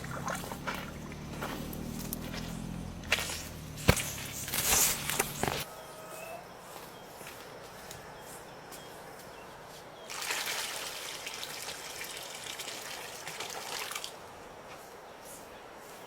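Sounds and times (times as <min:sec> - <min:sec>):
water pouring: 0:10.1 - 0:14.2.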